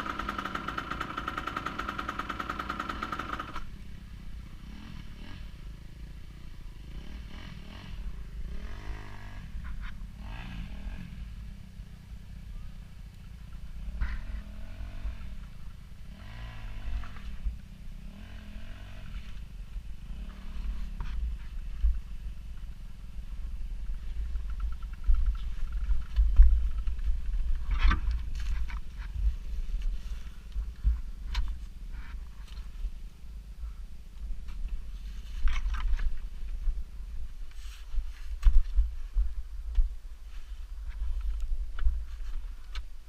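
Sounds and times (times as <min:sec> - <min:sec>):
off-road vehicle engine revving: 0:00.0 - 0:12.3, 0:13.2 - 0:22.0.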